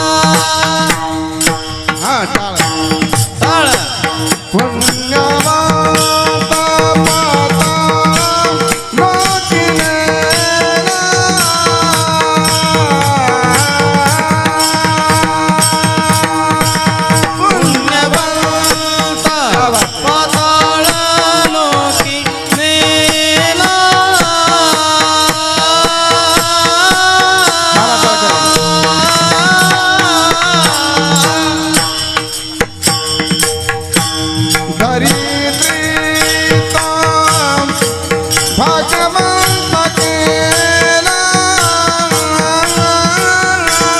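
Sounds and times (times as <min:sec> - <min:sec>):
person singing: 0:00.0 - 0:32.8
tabla drumming: 0:00.0 - 0:43.9.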